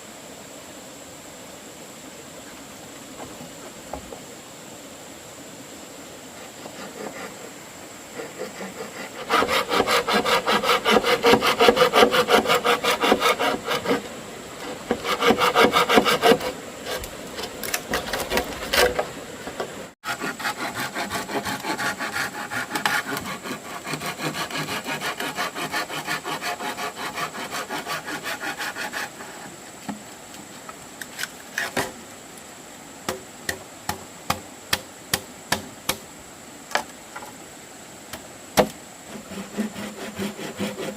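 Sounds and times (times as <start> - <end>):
hand saw cutting bamboo: 6.4 - 7.5, 8.1 - 19.1, 20.0 - 29.5, 39.1 - 40.9.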